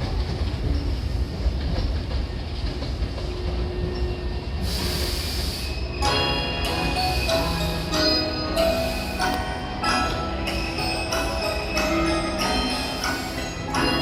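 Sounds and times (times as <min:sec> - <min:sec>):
electric train rumbling: 0:00.0 - 0:14.0
sharp air hiss: 0:04.6 - 0:06.0, 0:06.7 - 0:09.6
station chime melody: 0:06.0 - 0:14.0.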